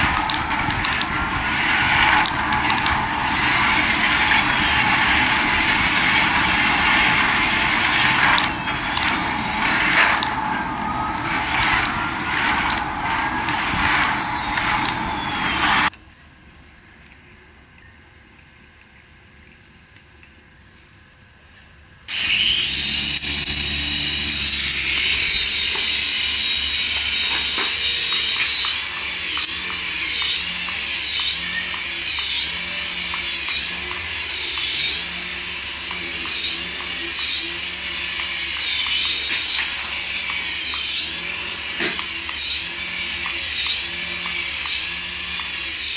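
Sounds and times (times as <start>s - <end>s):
toy electric motor whining: 0.0s - 15.9s, 22.1s - 45.9s
clicks: 0.0s - 20.7s.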